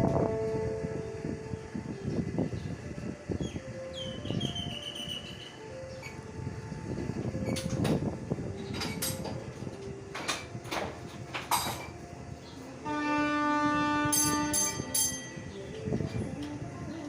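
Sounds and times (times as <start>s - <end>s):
train rumble: 0.0s - 17.0s
sharp clanks and knocks: 7.4s - 12.0s.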